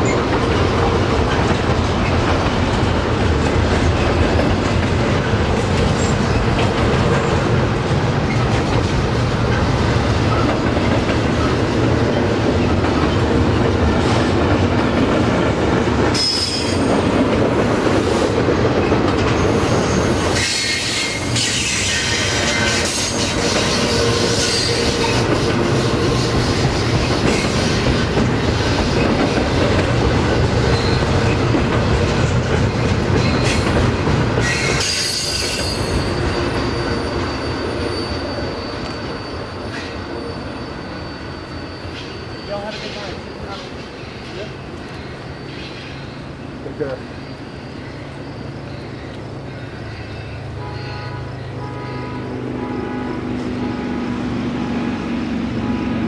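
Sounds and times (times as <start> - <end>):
freight train rolling past: 0.0 - 56.0
high wheel squeal: 16.1 - 17.0, 18.0 - 31.4, 32.7 - 53.7.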